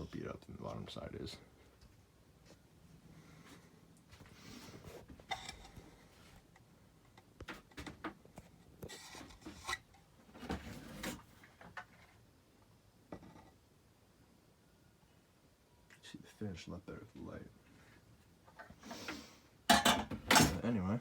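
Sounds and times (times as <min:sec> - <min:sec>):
rubbing and light knocks: 0:04.2 - 0:12.3.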